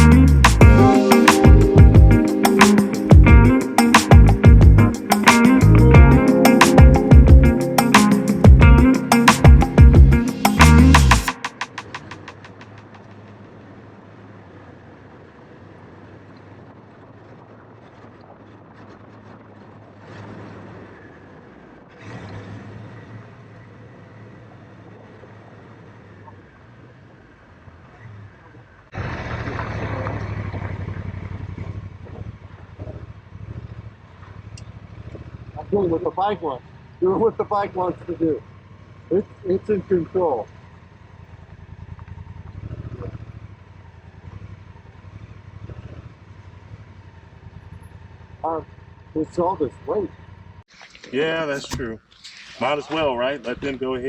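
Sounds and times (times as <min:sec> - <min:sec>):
motorcycle engine running: 0:00.0 - 0:50.7.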